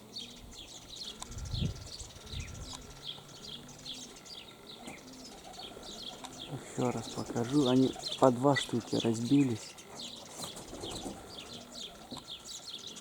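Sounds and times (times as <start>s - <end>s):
pigeons cooing: 0.0s - 13.0s
small birds chirping: 0.0s - 13.0s
wind buffeting microphone: 1.2s - 3.1s.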